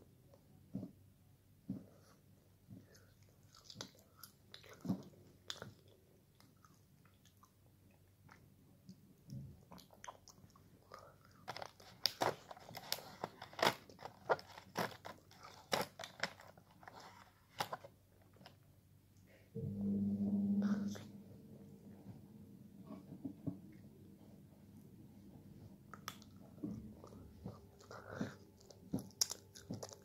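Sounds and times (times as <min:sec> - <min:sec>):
person chewing: 0:02.8 - 0:07.6, 0:09.7 - 0:17.8, 0:25.8 - 0:30.0.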